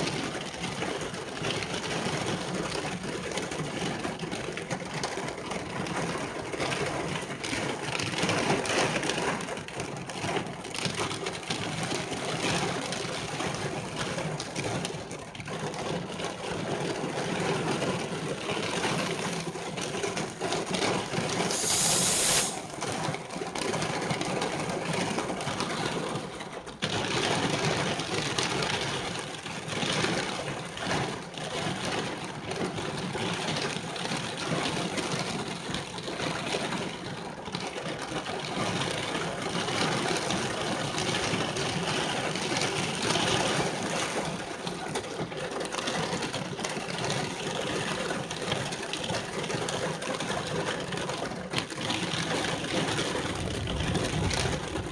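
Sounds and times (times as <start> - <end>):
rain falling: 20.0 - 23.0, 52.2 - 54.9
short sharp hiss: 21.5 - 22.6.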